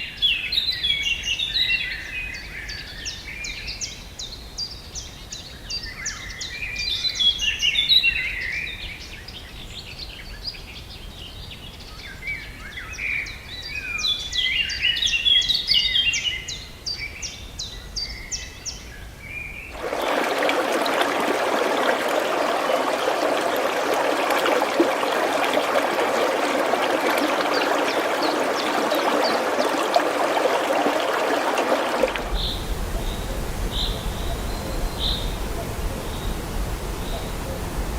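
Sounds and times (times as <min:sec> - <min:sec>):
songbirds chirping: 0:19.4 - 0:37.9
running water: 0:19.7 - 0:37.9.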